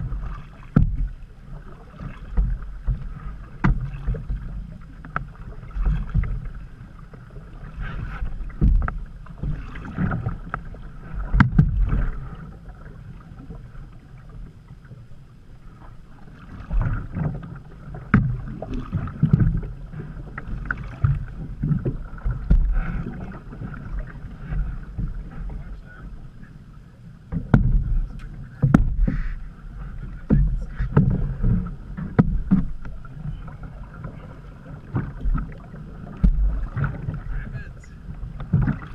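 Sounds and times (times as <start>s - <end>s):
paddle knocking against hull: 0.0s - 15.1s, 15.7s - 26.6s, 27.2s - 38.9s
paddle splashes: 0.0s - 38.9s
low thumps: 8.3s - 10.2s, 21.0s - 23.8s, 27.3s - 33.0s, 34.9s - 37.4s.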